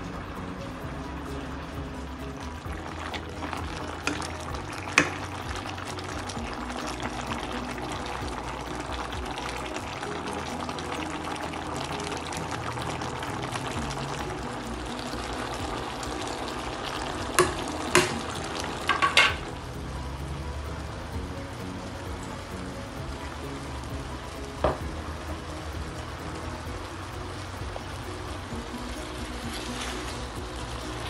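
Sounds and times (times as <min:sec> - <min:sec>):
background music: 0:00.0 - 0:31.0
water boiling in pot: 0:00.0 - 0:31.0
spoon knocking against pot: 0:17.4 - 0:18.2, 0:18.9 - 0:19.4.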